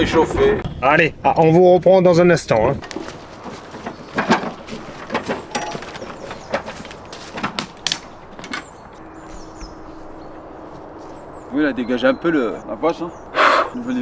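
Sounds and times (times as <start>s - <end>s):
clicks and knocks of handling: 2.8s - 11.5s.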